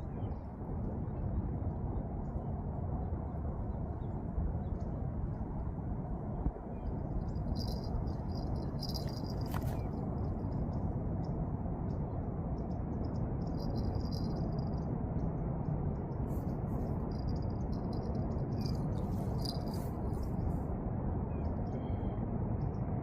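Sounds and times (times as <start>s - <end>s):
high-pitched chirping and trills: 6.8s - 10.7s, 13.1s - 14.8s, 16.3s - 20.5s.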